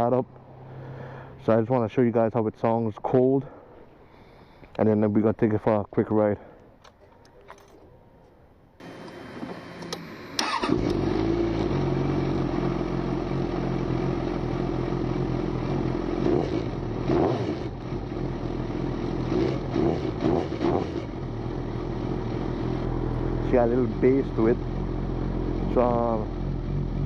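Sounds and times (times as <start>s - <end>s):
engine throttle blips: 8.8s - 27.0s
motorcycle engine starting and idling: 8.8s - 27.0s.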